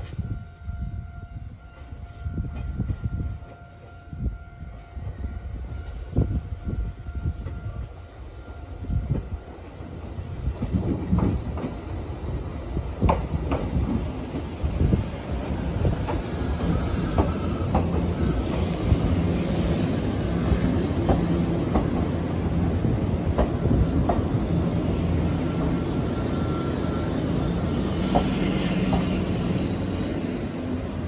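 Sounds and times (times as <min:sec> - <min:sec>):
train wheels clacking over joints: 0:15.4 - 0:19.1, 0:20.5 - 0:24.4.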